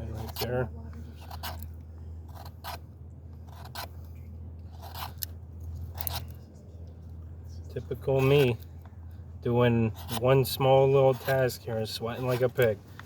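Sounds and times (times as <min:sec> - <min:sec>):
knife scraping wood shavings: 0:00.0 - 0:01.7, 0:04.7 - 0:06.3, 0:09.9 - 0:12.7.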